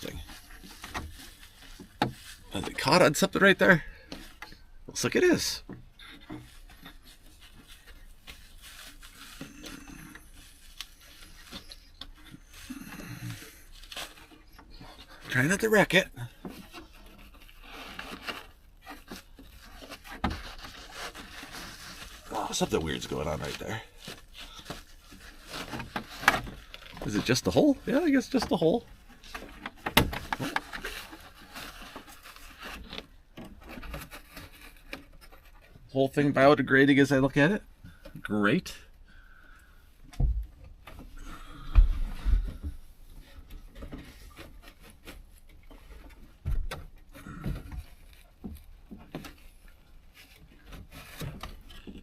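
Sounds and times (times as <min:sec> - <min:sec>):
headliner rustling and scraping: 0:00.0 - 0:36.3
scraping and rubbing of board: 0:16.2 - 0:35.9, 0:40.9 - 0:52.0.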